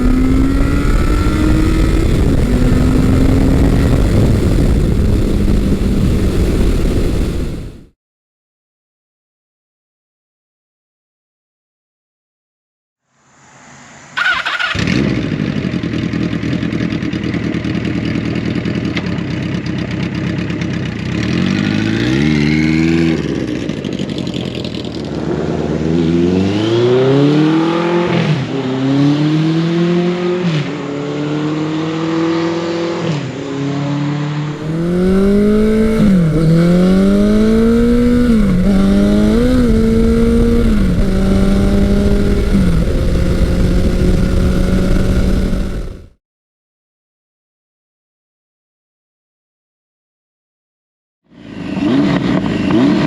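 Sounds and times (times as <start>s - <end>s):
motorcycle engine accelerating: 0.0s - 8.0s, 14.0s - 46.2s, 51.4s - 53.0s.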